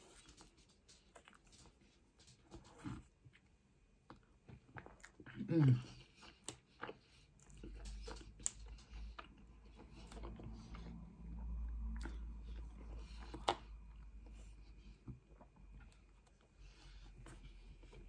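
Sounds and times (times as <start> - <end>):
person chewing: 0.0 - 1.8, 2.5 - 18.0.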